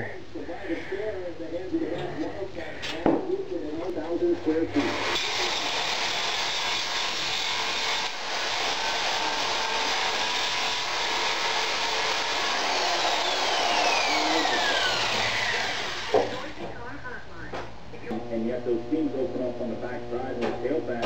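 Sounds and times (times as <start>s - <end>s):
power grinder grinding steel: 4.8s - 16.4s.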